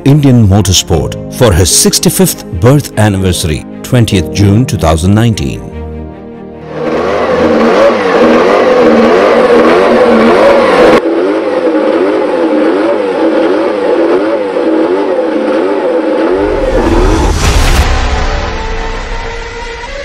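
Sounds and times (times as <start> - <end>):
race car engine revving: 6.6 - 20.0.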